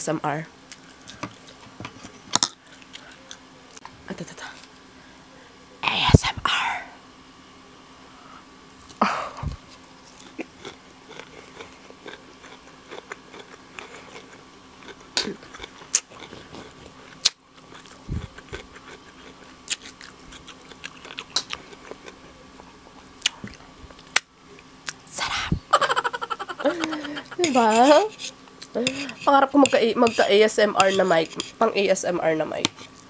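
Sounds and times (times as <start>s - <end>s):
chewing crisp lettuce: 0.7s - 1.7s, 9.6s - 25.0s.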